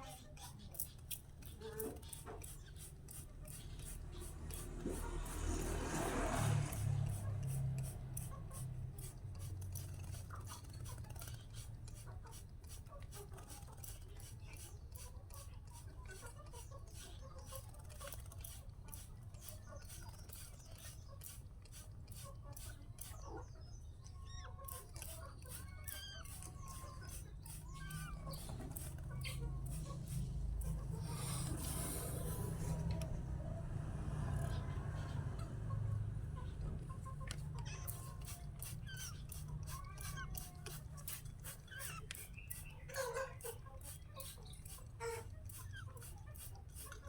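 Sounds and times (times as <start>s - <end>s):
short chirping bird calls: 22.6s - 29.8s, 36.9s - 46.5s.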